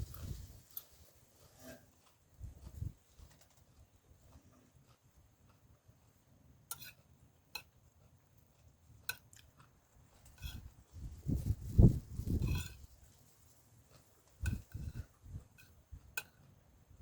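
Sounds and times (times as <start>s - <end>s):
close-up chewing: 0.0s - 17.0s.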